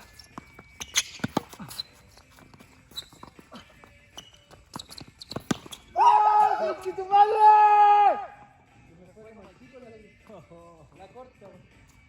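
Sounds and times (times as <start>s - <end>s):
players' footsteps: 0.0s - 6.0s.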